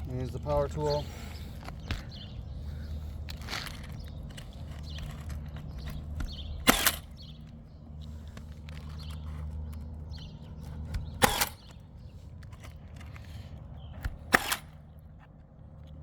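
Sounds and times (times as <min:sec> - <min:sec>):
power nailer firing into shingles: 0:05.8 - 0:07.6, 0:10.8 - 0:11.9, 0:14.0 - 0:15.1.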